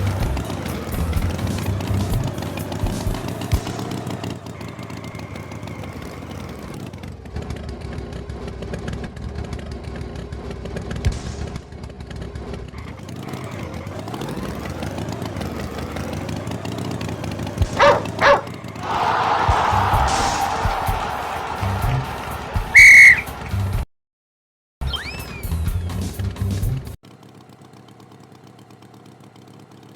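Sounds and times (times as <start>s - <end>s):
tractor engine running: 0.0s - 20.3s, 26.3s - 29.9s.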